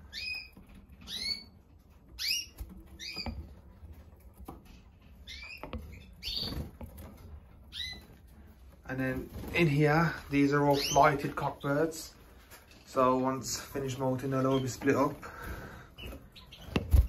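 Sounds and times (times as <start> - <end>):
canaries chirping: 0.0 - 17.0.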